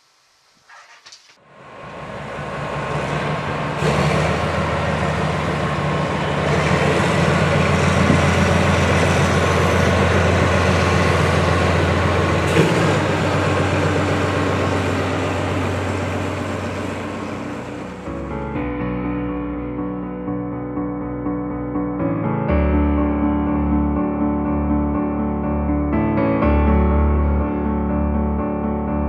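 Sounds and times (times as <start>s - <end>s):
train wheels rumbling and rattling: 0.7s - 18.0s
low train drone: 1.4s - 29.0s.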